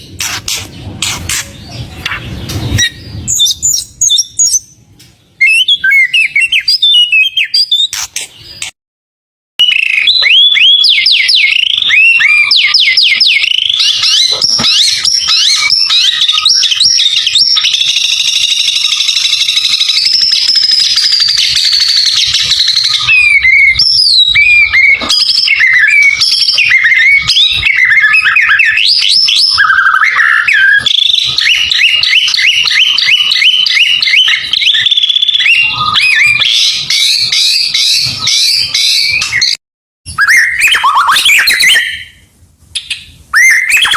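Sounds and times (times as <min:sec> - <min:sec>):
songbird singing: 0:00.0 - 0:08.7, 0:09.6 - 0:42.2.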